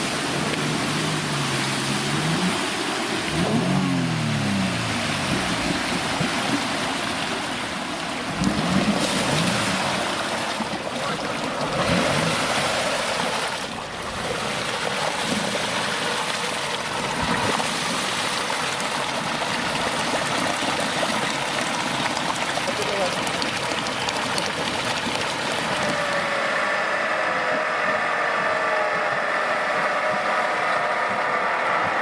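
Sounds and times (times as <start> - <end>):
engine revving in bursts: 0.6 - 6.3, 11.7 - 13.1.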